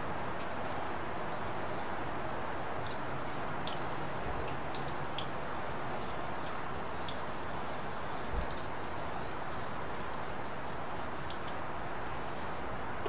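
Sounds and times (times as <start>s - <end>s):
raindrops ticking close by: 0.0s - 13.0s
steady rain hiss: 0.0s - 13.0s.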